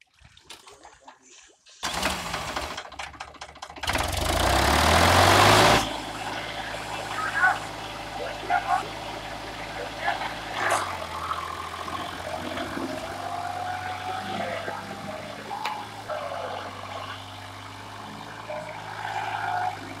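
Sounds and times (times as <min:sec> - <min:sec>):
tractor diesel engine running: 0:01.8 - 0:20.0.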